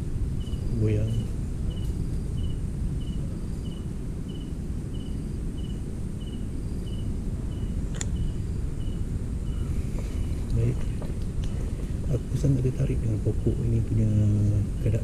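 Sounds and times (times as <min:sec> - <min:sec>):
cricket chirping: 0:00.0 - 0:15.0
steady low rumble: 0:00.0 - 0:15.0
sharp click: 0:07.9 - 0:08.2.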